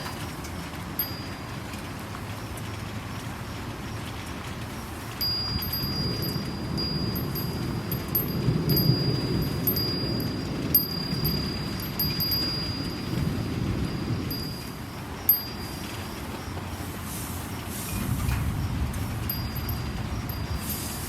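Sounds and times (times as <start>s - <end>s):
steady rain: 0.0s - 21.0s
wind chime ringing: 1.0s - 1.5s, 5.2s - 16.6s, 17.8s - 21.0s.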